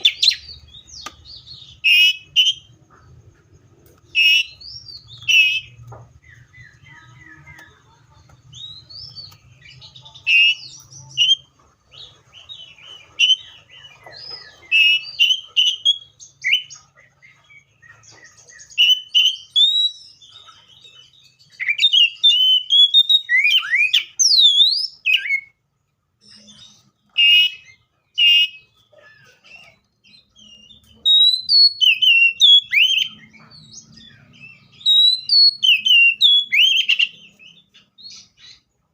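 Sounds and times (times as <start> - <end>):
bird singing whistled phrases: 0.0 - 2.7, 4.1 - 7.6, 18.6 - 20.3, 21.5 - 25.6, 26.4 - 33.3, 34.2 - 38.6.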